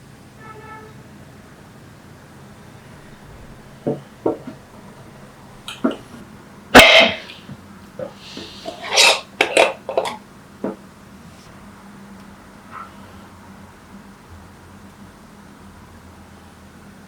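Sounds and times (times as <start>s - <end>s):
kitchenware clinking: 2.9s - 6.2s, 6.8s - 7.4s, 8.0s - 10.8s
kitchenware knocking: 3.0s - 6.2s.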